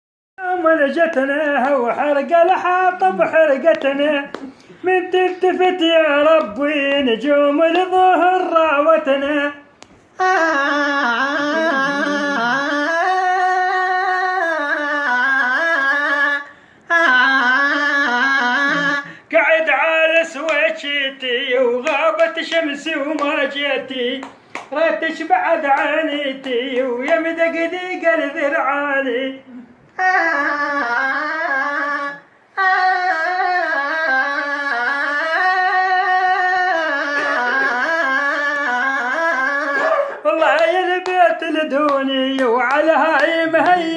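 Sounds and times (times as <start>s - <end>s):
person singing unaccompanied: 0.4s - 43.9s
singer breathing: 16.5s - 16.9s, 19.0s - 19.3s.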